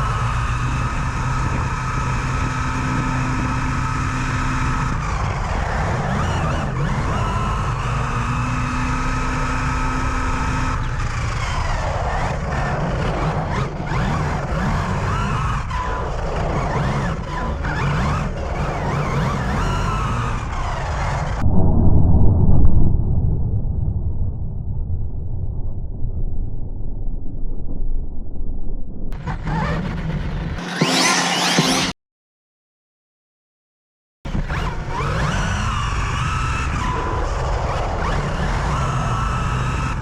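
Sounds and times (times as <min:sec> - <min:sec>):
rc car motor whine: 0:00.0 - 0:21.4, 0:29.2 - 0:31.9, 0:34.3 - 0:40.0
wind: 0:00.0 - 0:31.5, 0:34.3 - 0:40.0.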